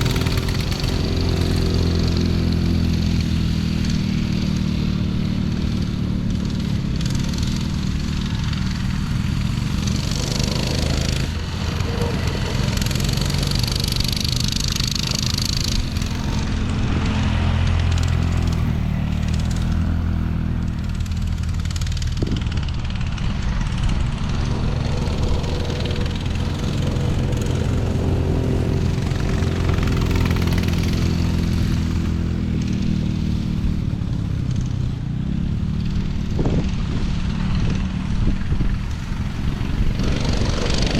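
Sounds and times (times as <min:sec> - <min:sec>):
off-road vehicle engine running: 0:00.0 - 0:40.9
rushing noise: 0:06.5 - 0:32.7.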